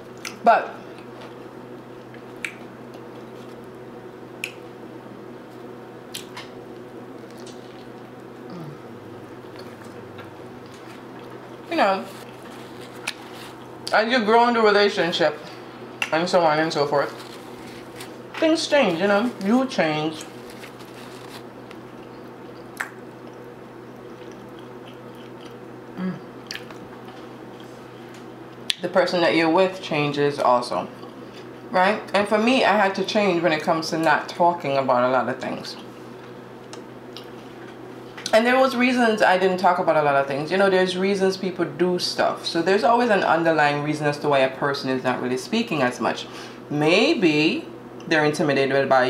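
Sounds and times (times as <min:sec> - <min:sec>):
steady low hum: 0:00.0 - 0:49.0
chewing with wet mouth clicks: 0:00.2 - 0:00.4, 0:02.0 - 0:03.7, 0:04.4 - 0:04.6, 0:20.2 - 0:25.7, 0:26.4 - 0:28.8
person chewing food: 0:06.1 - 0:13.9, 0:17.1 - 0:18.3, 0:20.2 - 0:28.7
throat hum: 0:08.5 - 0:09.0.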